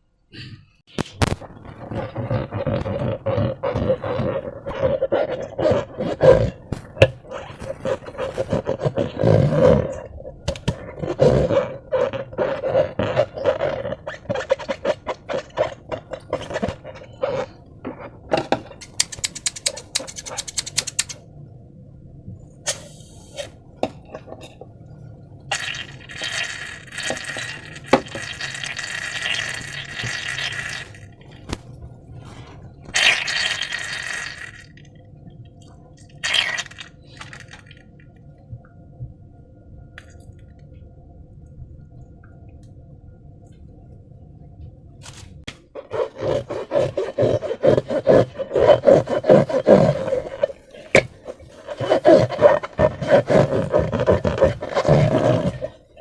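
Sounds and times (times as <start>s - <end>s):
slime squelching: 1.0s - 21.2s, 25.5s - 34.8s, 36.1s - 37.8s, 45.6s - 56.0s
sticky clicks: 18.8s - 21.2s.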